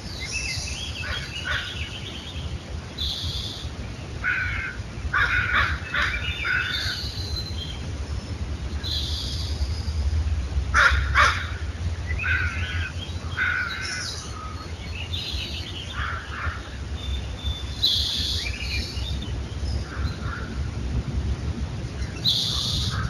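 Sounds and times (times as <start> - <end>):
birds chirping: 0.0 - 23.0
crows cawing: 4.2 - 7.0, 10.7 - 14.2, 15.9 - 16.7.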